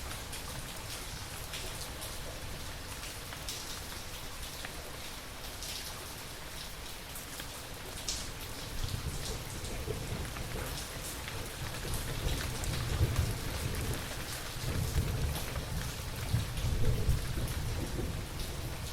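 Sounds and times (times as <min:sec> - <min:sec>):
steady rain falling: 0:00.0 - 0:18.9
rumble of thunder: 0:08.8 - 0:18.9.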